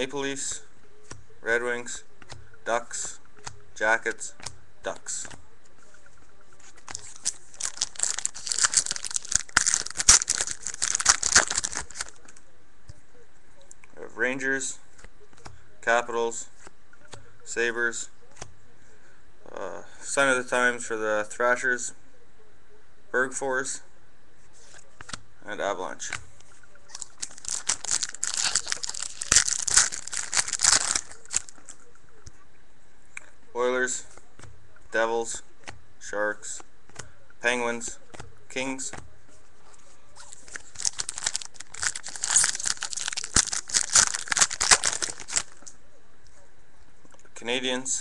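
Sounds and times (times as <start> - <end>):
card pack wrapper crinkling: 6.8 - 12.3, 26.9 - 31.7, 40.2 - 45.7.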